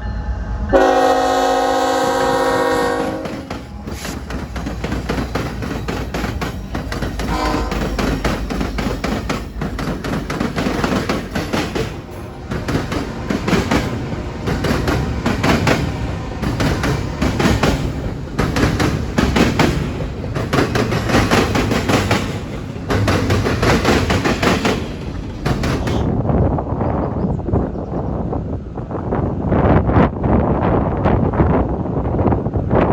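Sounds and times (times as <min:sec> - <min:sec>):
train horn: 0:00.0 - 0:04.1, 0:07.2 - 0:08.2
train wheels clattering on rails: 0:01.3 - 0:26.2.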